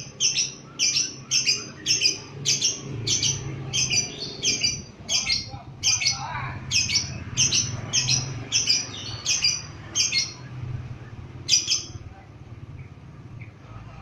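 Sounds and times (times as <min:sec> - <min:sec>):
lovebird chirping: 0:00.0 - 0:12.1.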